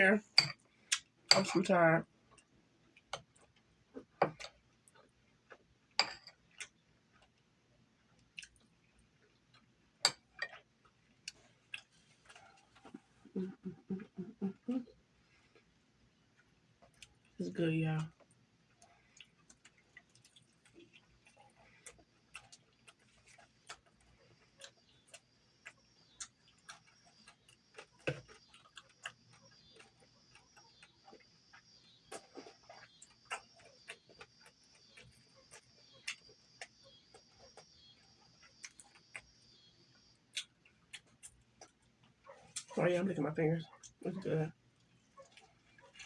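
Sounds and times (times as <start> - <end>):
chewing and lip smacks: 8.1 - 13.3, 18.1 - 42.8, 44.6 - 46.0.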